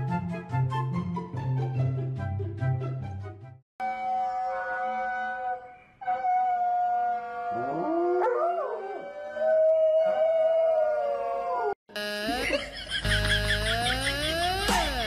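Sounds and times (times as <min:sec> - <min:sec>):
dog howling: 0:03.9 - 0:11.8.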